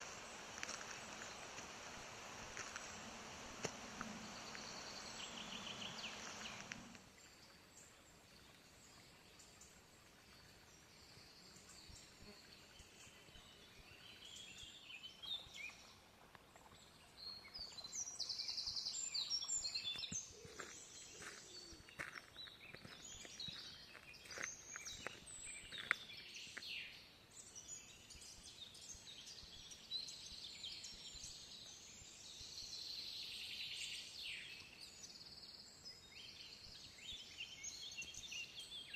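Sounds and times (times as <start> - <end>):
steady rushing noise: 0.0 - 7.0
small birds singing and calling: 0.0 - 38.9.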